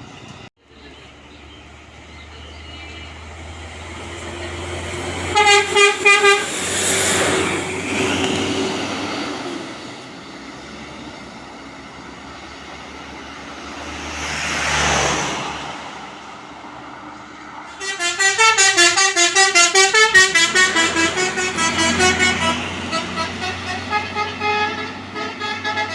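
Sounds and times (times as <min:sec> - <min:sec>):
vehicle passing: 0:00.8 - 0:25.9
musical horn playing pulsed notes: 0:05.2 - 0:08.0, 0:17.7 - 0:25.9.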